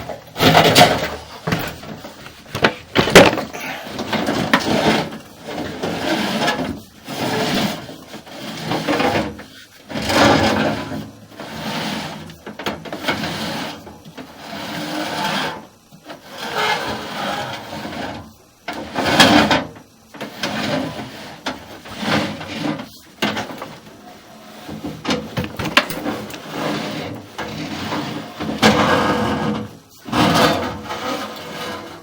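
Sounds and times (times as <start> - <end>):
rod scraping inside a duct: 0.0 - 12.3, 20.2 - 25.2, 26.0 - 32.0.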